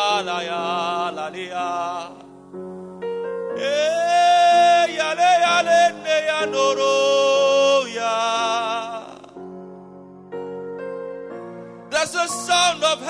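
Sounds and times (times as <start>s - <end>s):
man singing wordless long notes: 0.0s - 2.4s, 3.6s - 9.5s, 11.9s - 13.0s.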